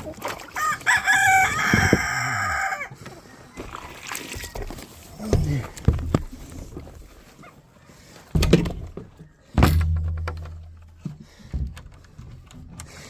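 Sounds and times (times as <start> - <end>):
heavy thunks: 8.3 - 13.0.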